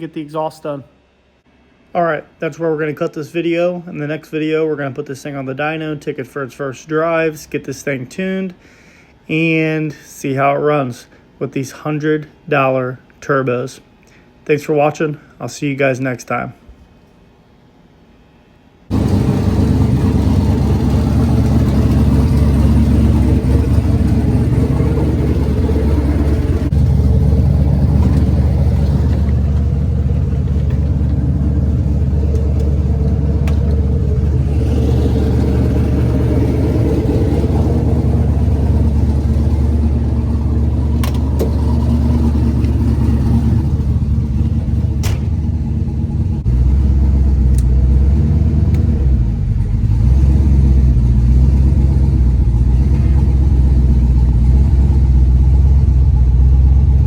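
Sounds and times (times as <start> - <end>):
drag car engine running: 18.9 - 57.0.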